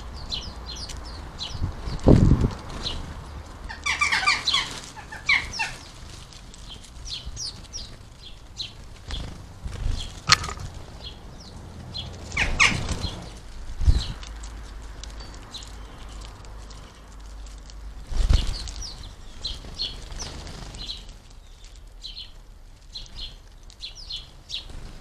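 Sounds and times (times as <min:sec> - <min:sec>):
sparrows chirping: 0:00.0 - 0:25.0
wings fluttering: 0:03.9 - 0:11.0, 0:18.0 - 0:21.4
sharp tap: 0:10.3 - 0:10.7
thumps: 0:10.3 - 0:10.8.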